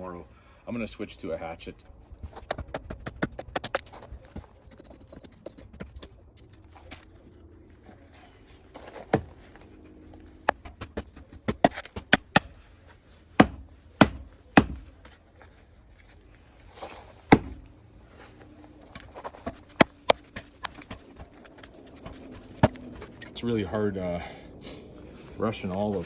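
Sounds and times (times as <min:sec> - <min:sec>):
hatchet chopping wood: 0:10.5 - 0:12.6, 0:13.4 - 0:14.9, 0:17.3 - 0:17.7, 0:19.4 - 0:23.0.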